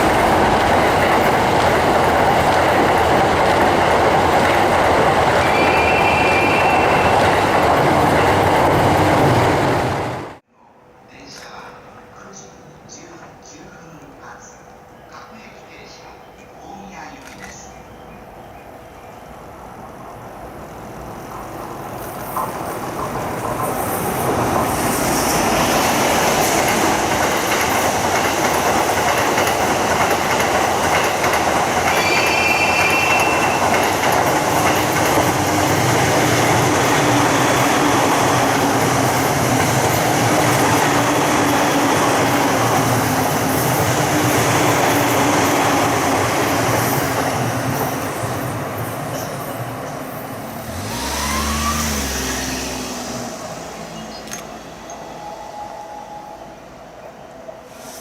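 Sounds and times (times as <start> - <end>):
high-pitched train squeal: 5.4 - 7.6, 31.9 - 35.0, 50.5 - 56.8
train wheels clattering over rails: 21.2 - 50.0.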